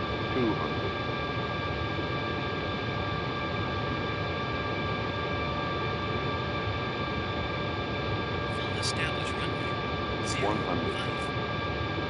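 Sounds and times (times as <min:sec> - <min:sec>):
airflow and engine rush: 0:07.9 - 0:11.3.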